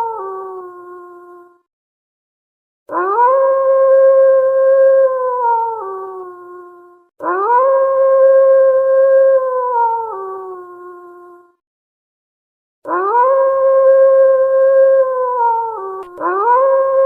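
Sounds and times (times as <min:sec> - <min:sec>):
wolf howling: 0:12.9 - 0:17.0.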